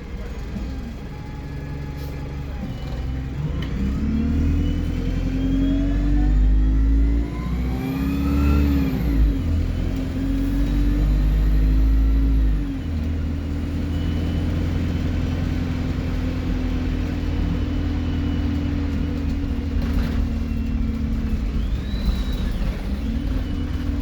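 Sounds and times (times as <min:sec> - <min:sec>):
bus diesel engine droning: 0:00.0 - 0:24.0
faint high turbo whistle: 0:20.5 - 0:24.0.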